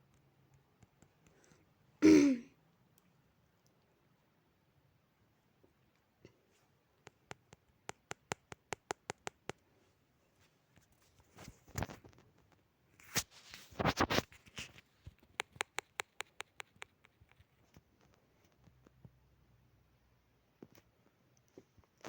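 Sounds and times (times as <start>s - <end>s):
scraping rustling noises: 9.8s - 15.3s
rapid sharp clicks: 15.2s - 17.4s.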